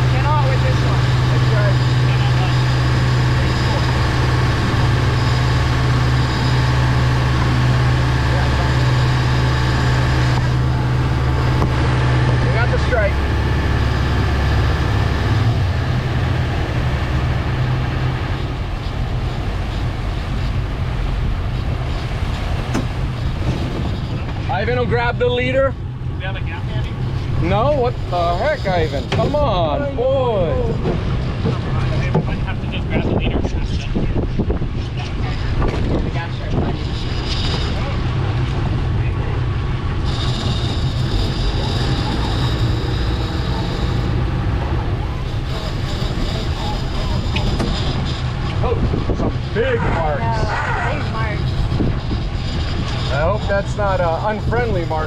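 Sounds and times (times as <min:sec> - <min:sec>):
boat engine running: 0:00.0 - 0:55.0
water wash: 0:00.0 - 0:55.0
wind buffeting microphone: 0:00.0 - 0:55.0
thin high whine: 0:40.0 - 0:55.0.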